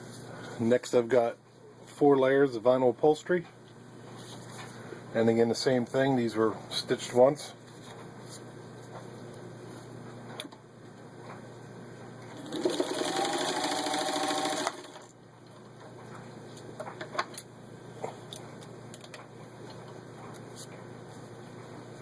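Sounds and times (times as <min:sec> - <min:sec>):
sewing machine stitching: 0:12.4 - 0:15.1.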